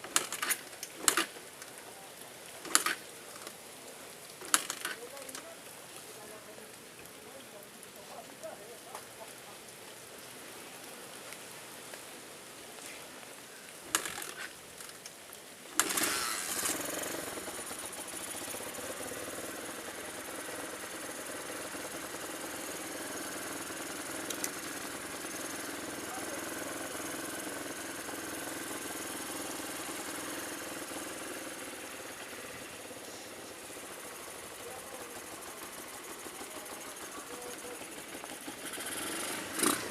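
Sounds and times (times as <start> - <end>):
small engine starting and idling: 0.0 - 1.9, 2.6 - 3.6, 4.4 - 5.4, 13.9 - 15.0, 15.8 - 39.9.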